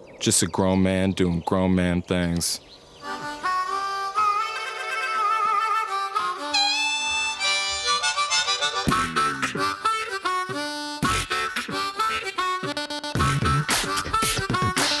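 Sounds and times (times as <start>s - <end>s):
harmonica playing bluesy melody: 3.0s - 15.0s
beatboxed percussion: 7.7s - 15.0s.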